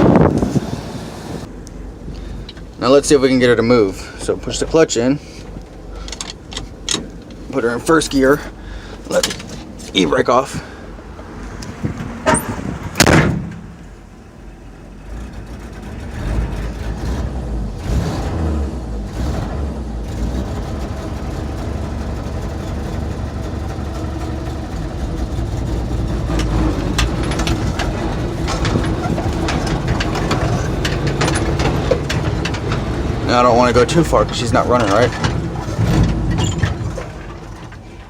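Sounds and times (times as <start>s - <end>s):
loud clunk: 12.3s - 13.9s, 26.3s - 33.2s, 34.8s - 37.8s
truck engine pulling away: 14.5s - 38.0s.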